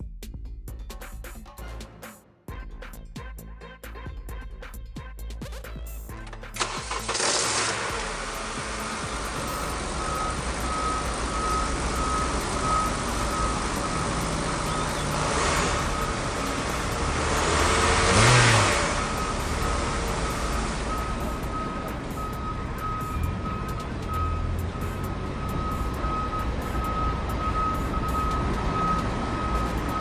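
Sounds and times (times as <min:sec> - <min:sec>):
truck engine running: 0:06.1 - 0:30.0
faint repeating beep: 0:08.8 - 0:30.0.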